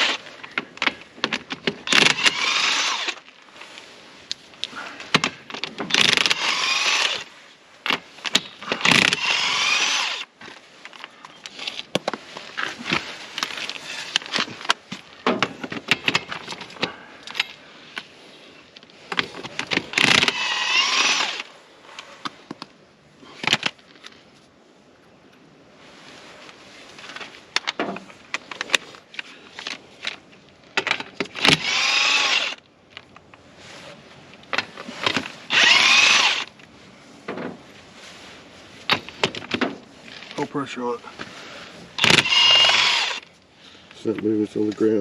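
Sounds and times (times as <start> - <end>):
impact wrench whirring: 0.0 - 0.2, 1.8 - 3.2, 5.9 - 7.3, 8.8 - 10.3, 20.0 - 21.5, 31.3 - 32.6, 35.5 - 36.5, 42.0 - 43.3.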